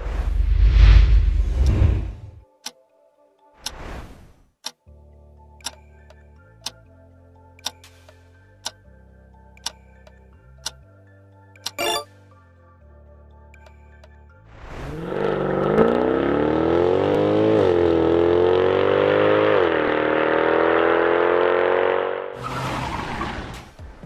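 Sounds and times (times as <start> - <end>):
car engine accelerating hard: 14.8 - 23.0.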